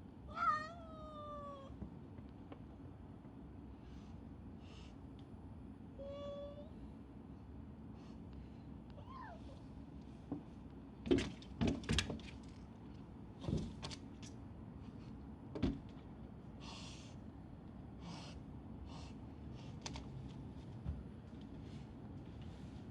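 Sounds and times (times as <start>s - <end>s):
cat meowing: 0.3s - 1.8s, 6.0s - 6.7s.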